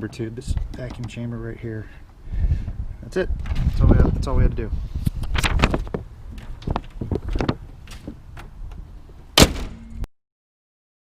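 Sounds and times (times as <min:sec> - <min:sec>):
light clicks and knocks: 0:00.0 - 0:01.3
loud slam: 0:09.4 - 0:10.0.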